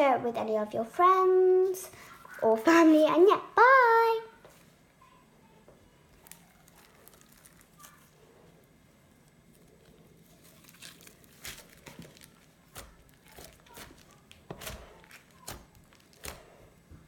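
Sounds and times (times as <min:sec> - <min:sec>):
slime crackling and popping: 0:06.1 - 0:16.8.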